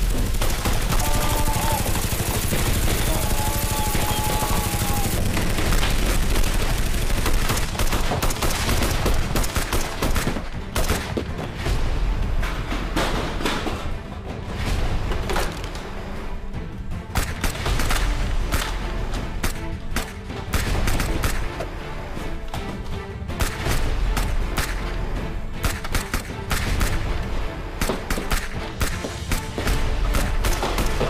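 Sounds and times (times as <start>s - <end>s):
rapid automatic gunfire: 0.0s - 11.0s.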